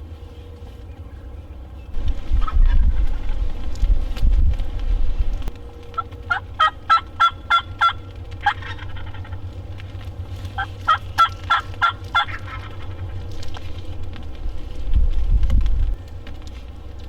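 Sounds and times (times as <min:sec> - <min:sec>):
wind rumble on microphone: 0:00.0 - 0:17.0
turkey yelping: 0:05.9 - 0:09.7, 0:10.4 - 0:13.8.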